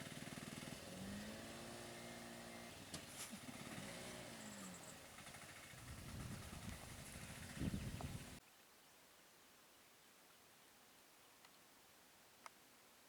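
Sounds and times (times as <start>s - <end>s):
small engine revving: 0.0s - 8.4s.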